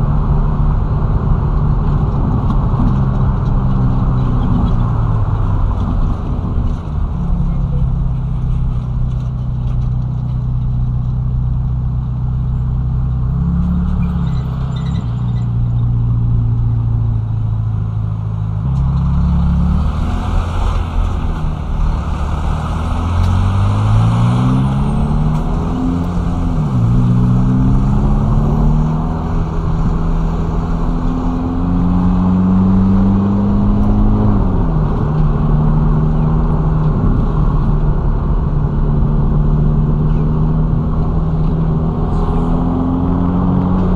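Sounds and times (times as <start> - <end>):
car engine revving: 12.4 - 43.9.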